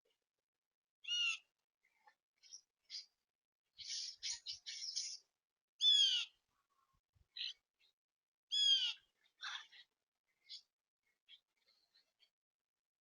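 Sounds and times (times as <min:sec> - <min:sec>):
loud ringing bird calls: 0:01.0 - 0:01.4, 0:05.8 - 0:06.4, 0:08.5 - 0:09.1.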